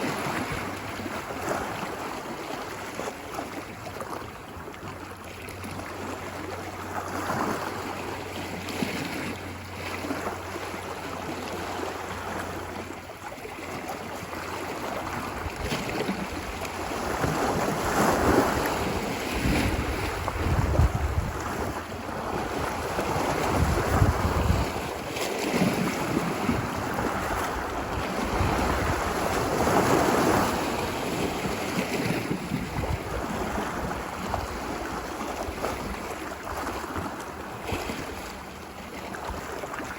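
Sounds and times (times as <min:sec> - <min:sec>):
ocean waves washing ashore: 0:00.0 - 0:39.9
wind rumbling on microphone: 0:14.1 - 0:38.5.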